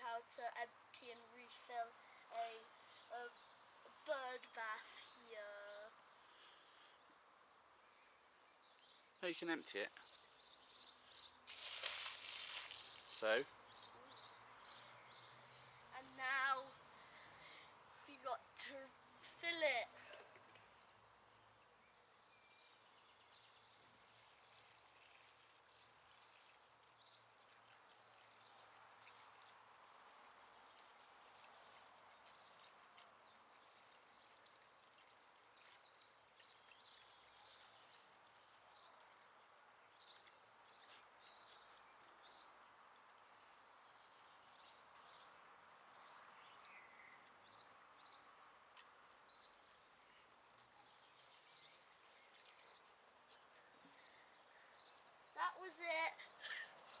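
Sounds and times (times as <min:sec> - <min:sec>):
water pouring: 0:11.5 - 0:13.4.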